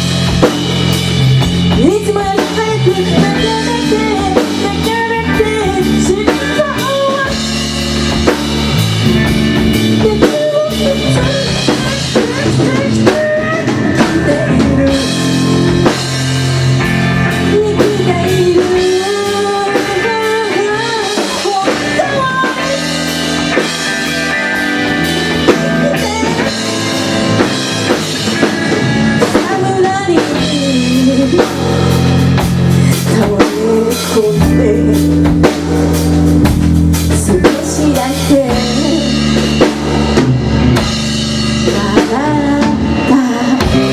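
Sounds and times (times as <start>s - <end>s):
drum kit steady beat: 0.0s - 43.9s
electric guitar: 0.0s - 43.9s
melodic lead line: 0.0s - 43.9s.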